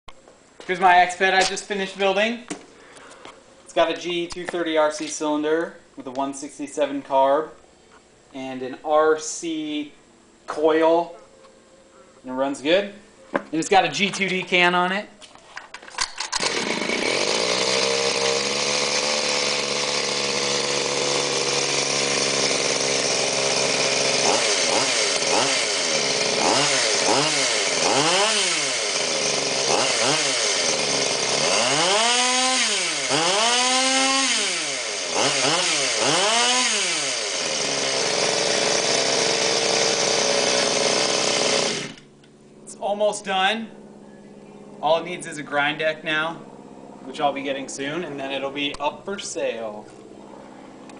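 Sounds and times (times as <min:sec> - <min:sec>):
two-stroke engine revving: 0:16.3 - 0:42.1.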